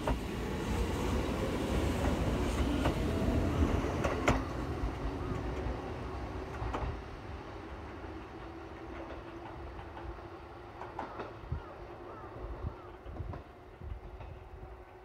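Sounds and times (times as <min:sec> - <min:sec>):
electric train humming: 0:00.0 - 0:11.6.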